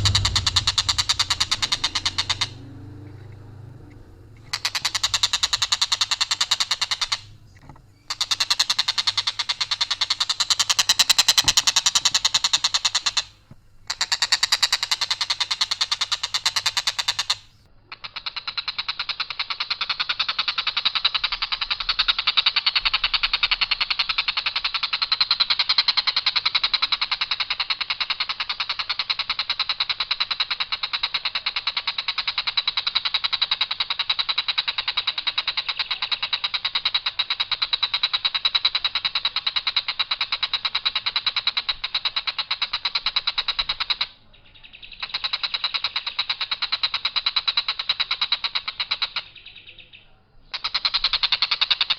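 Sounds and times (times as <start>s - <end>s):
kingfisher rattling call: 0.0s - 49.8s, 50.5s - 51.9s.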